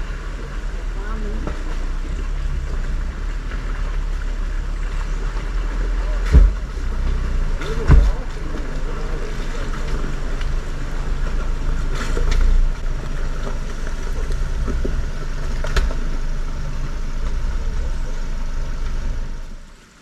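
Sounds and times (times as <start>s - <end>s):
suv engine running at low speed: 0.0s - 20.0s.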